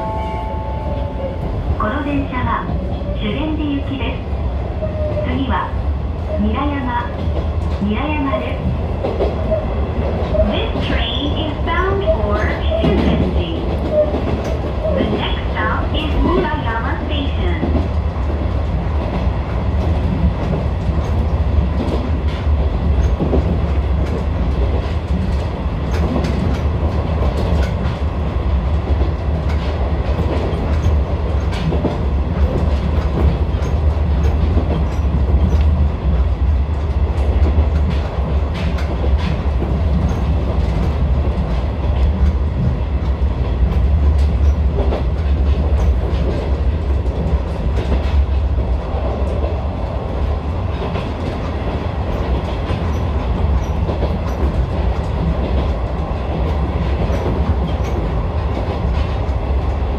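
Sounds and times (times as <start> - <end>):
train low rumble: 0.0 - 59.9
wheels clicking over rail joints: 28.9 - 49.5, 50.7 - 59.9.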